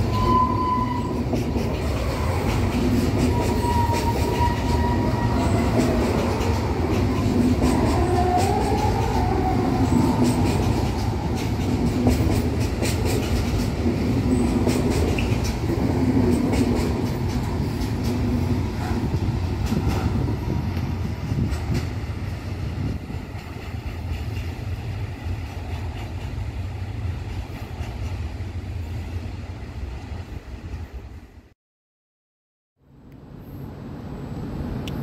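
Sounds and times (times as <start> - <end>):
freight train rumbling: 0.0 - 31.5, 32.9 - 35.0.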